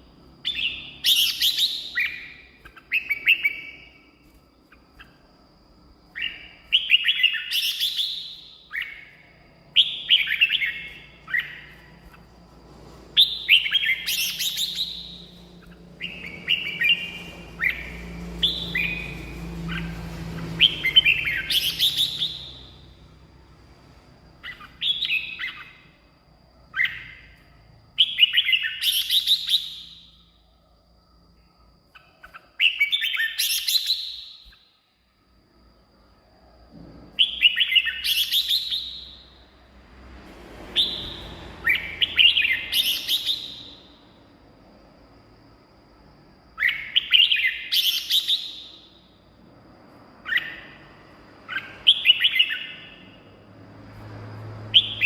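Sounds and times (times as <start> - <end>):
bird singing warbling phrases: 13.2 - 22.8.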